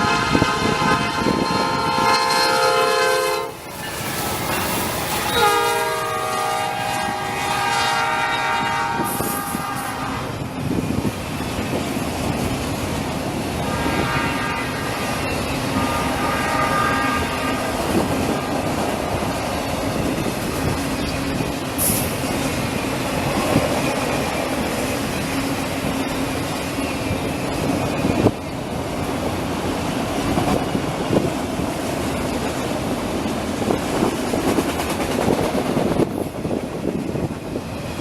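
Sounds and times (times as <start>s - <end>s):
faint train horn: 0.0s - 3.6s, 5.0s - 10.5s, 13.5s - 18.8s
train rumbling on rails: 0.0s - 38.0s.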